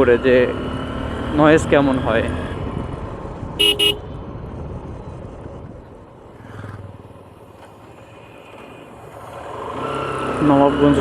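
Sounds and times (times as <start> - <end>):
wind and road rush: 0.0 - 11.0
motorcycle engine: 2.4 - 4.6
horn beeps: 3.6 - 4.0.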